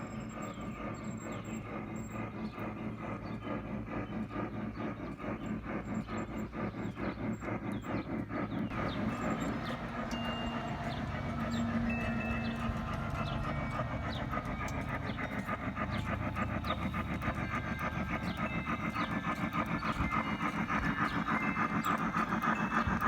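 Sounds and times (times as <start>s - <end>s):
low running hum: 0.0s - 23.0s
model train wheels clicking: 0.0s - 23.0s.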